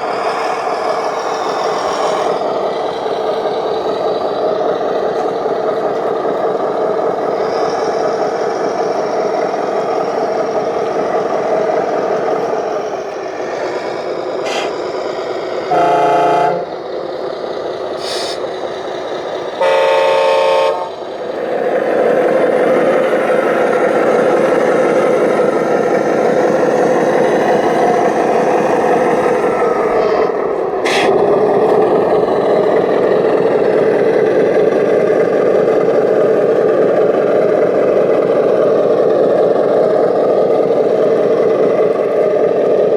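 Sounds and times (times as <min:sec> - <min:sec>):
horn blasts: 0:15.7 - 0:16.7, 0:19.6 - 0:21.0.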